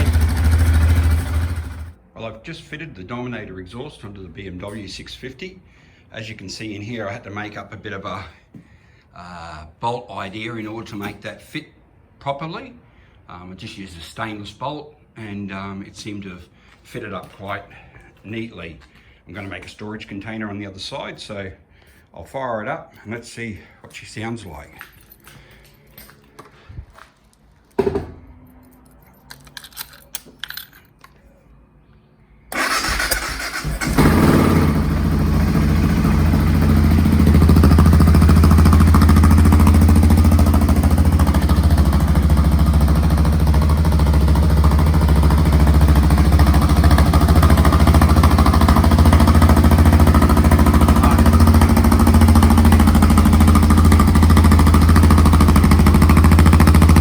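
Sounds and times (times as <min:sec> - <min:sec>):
motorcycle engine starting and idling: 0:00.0 - 0:02.0, 0:32.5 - 0:57.0.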